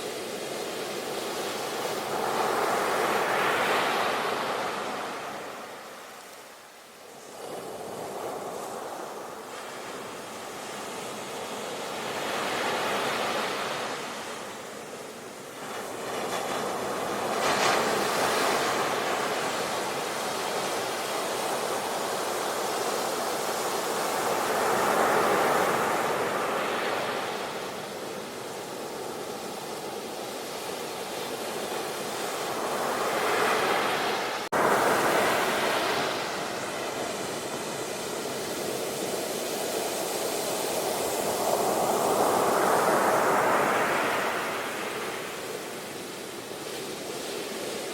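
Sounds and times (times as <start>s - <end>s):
sea waves breaking: 30.8s - 47.8s.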